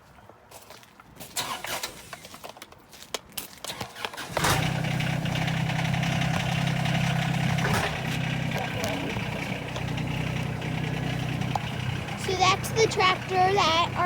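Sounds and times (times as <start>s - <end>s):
tractor engine starting and running: 1.3s - 2.7s, 3.6s - 14.0s.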